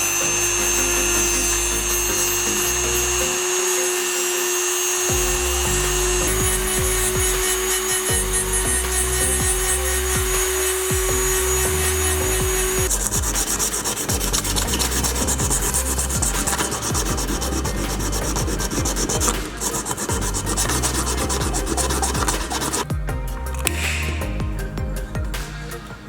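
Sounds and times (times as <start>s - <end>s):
sanding rubbing strokes: 0.0s - 22.9s.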